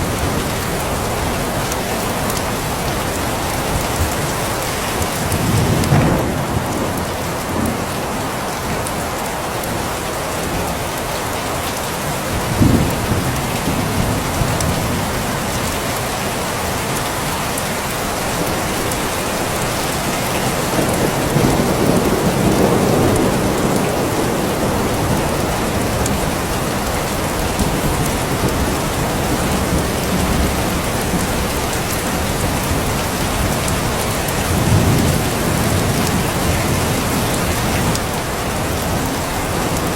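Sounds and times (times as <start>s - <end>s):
heavy rain falling: 0.0s - 39.9s
low rumbles of thunder: 5.2s - 8.9s, 12.3s - 15.6s, 20.6s - 39.9s.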